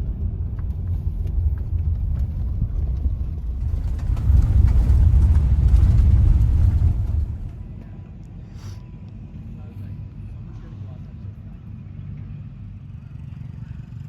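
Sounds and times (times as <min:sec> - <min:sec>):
dirt bike engine rumbling: 0:00.0 - 0:09.5.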